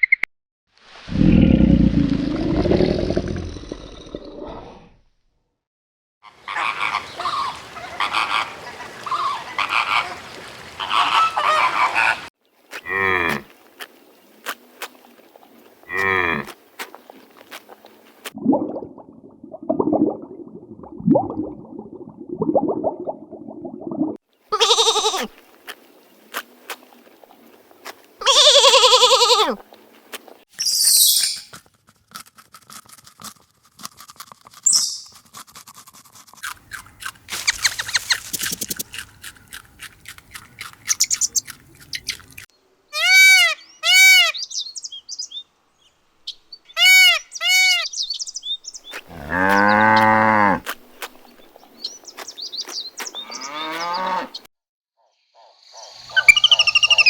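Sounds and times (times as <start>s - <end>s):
animal calls: 6.2s - 13.4s, 55.8s - 57.0s.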